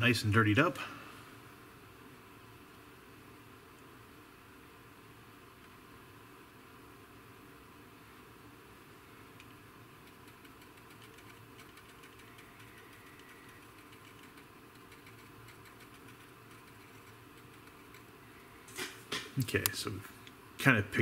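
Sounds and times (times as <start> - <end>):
faint mechanical hum: 0.0 - 21.0
paintbrush dabbing and scrubbing: 10.1 - 18.2.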